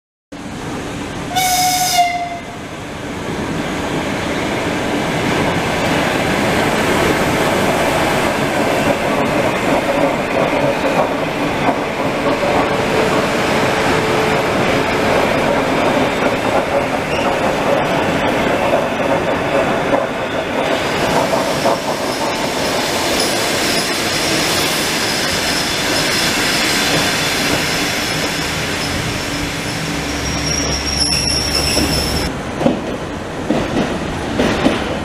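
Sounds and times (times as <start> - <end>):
train wheels rumbling on rails: 0.4 - 35.0
train horn blast: 1.3 - 2.6.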